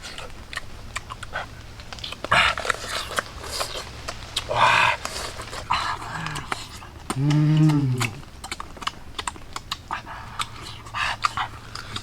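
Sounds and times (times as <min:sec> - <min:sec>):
crunchy bites of raw mango: 0:00.0 - 0:12.0.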